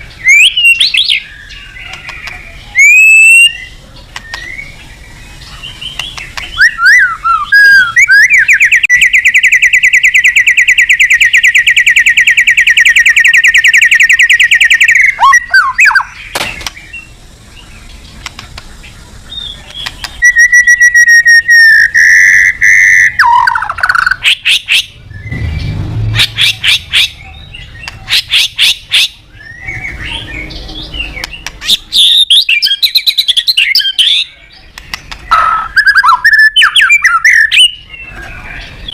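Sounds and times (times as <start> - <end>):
bird whistled notes: 0.2 - 4.8, 5.8 - 16.2, 19.3 - 25.6, 35.3 - 37.9
bird rapid clicking notes: 1.9 - 2.4, 4.1 - 4.5, 5.9 - 6.9, 18.2 - 18.8, 19.6 - 20.9, 31.2 - 31.7, 34.8 - 36.2.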